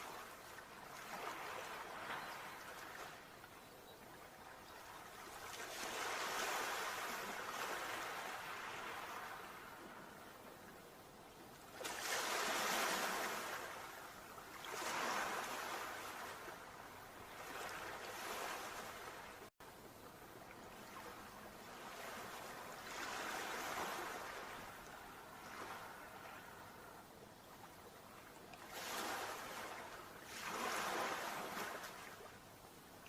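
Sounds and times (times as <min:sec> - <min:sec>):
sea waves washing ashore: 0:00.0 - 0:03.6, 0:04.3 - 0:10.8, 0:11.4 - 0:19.5, 0:20.4 - 0:33.0.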